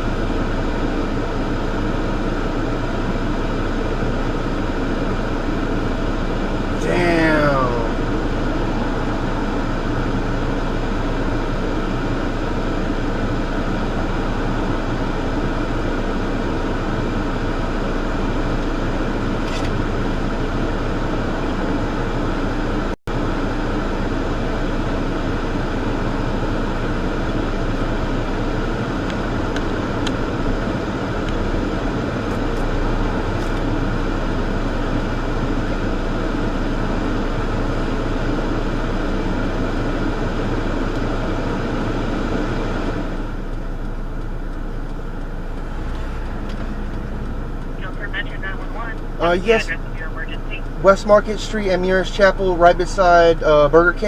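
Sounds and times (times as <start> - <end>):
vehicle hum: 0.0 - 54.0
fan-like rush: 6.4 - 15.0.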